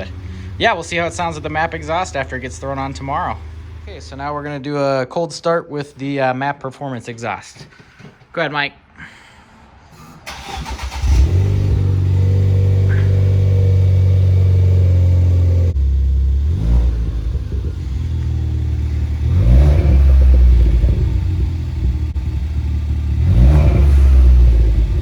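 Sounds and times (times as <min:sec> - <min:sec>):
car engine starting and idling: 0:00.0 - 0:04.7, 0:10.2 - 0:25.0.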